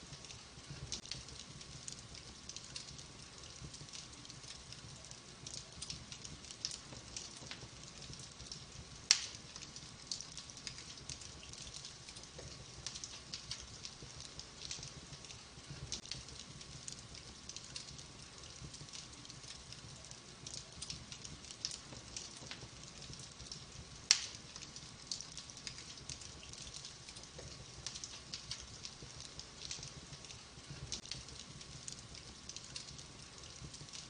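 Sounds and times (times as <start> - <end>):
wood fire crackling: 0.0 - 34.0
loud sharp pop of fire: 9.1 - 9.4, 24.1 - 24.4.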